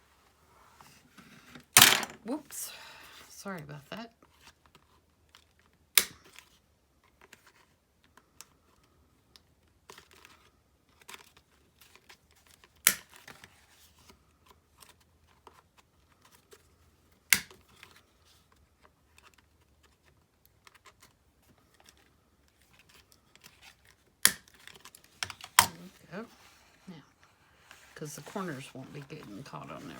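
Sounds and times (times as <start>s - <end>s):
paper rustling: 17.7s - 29.9s.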